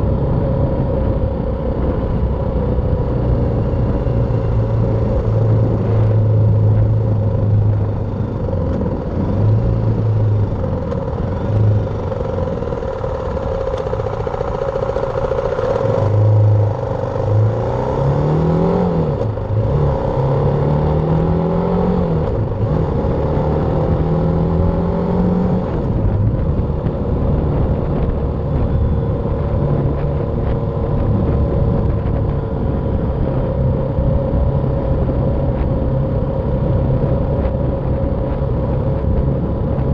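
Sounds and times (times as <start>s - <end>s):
riding noise: 0.0s - 17.5s
motorcycle engine running: 0.0s - 39.9s.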